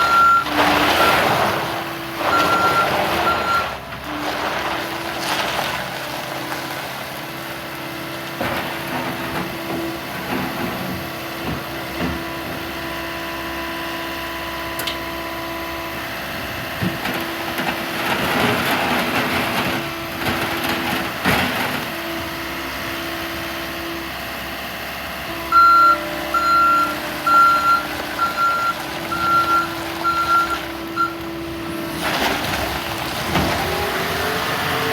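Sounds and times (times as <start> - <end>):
backup alarm beeping: 0.0 - 1.1, 25.5 - 31.2
skid steer diesel engine running: 0.0 - 34.9.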